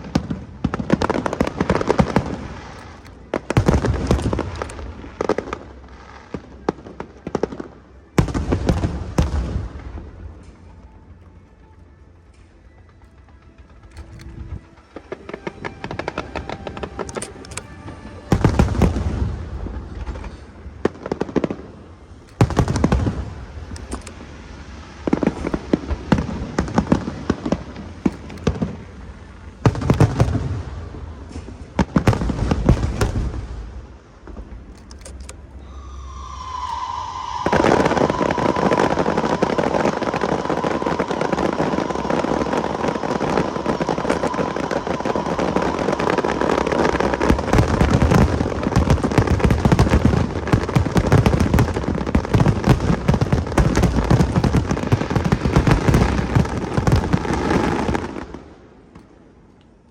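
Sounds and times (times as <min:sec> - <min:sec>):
firework crackling: 0:00.0 - 0:11.6, 0:12.4 - 0:34.7, 0:35.4 - 0:59.4
firework booms: 0:22.4 - 0:23.8, 0:29.6 - 0:34.4, 0:36.0 - 0:58.4
steady whistling tone: 0:35.3 - 0:58.4.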